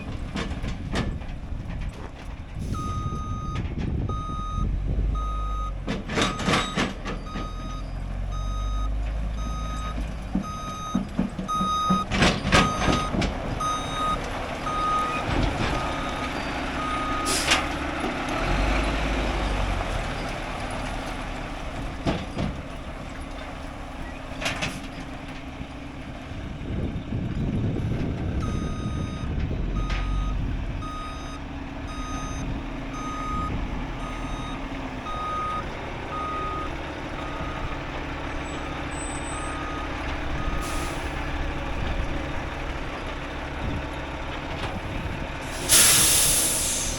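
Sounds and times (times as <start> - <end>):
truck engine running: 0.0 - 46.9
reversing alarm beeping: 2.7 - 17.5, 28.4 - 37.8, 38.4 - 41.0
air hisses: 45.6 - 46.9.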